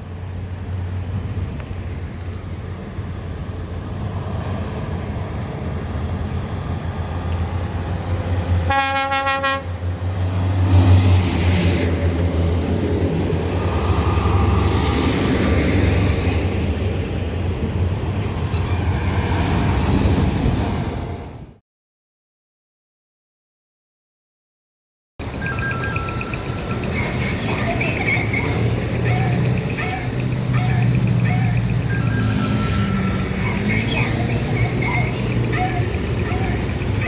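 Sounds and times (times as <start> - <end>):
truck diesel engine rumbling: 0.0 - 21.5, 25.2 - 37.0
truck horn blast: 8.7 - 9.8.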